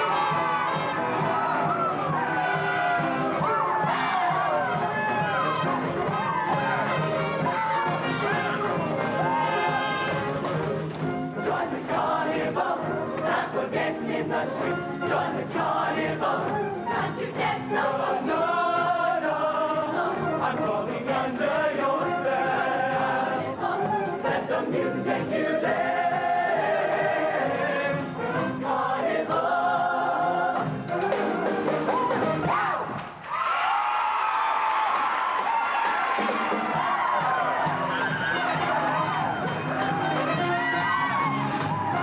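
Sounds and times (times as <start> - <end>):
choir singing in harmony: 11.1 - 32.0, 36.6 - 42.0.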